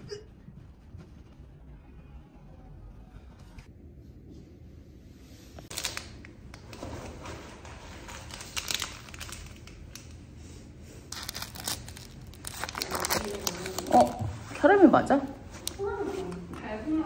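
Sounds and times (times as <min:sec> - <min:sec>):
crinkling and rustling: 0:05.6 - 0:17.0.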